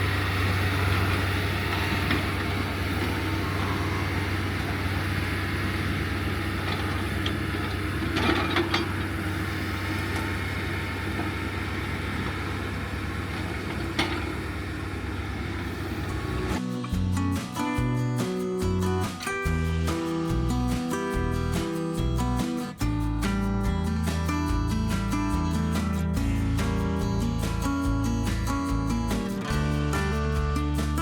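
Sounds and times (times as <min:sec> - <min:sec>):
heavy machine engine drone: 0:00.0 - 0:16.6
metal clanks: 0:04.5 - 0:16.6.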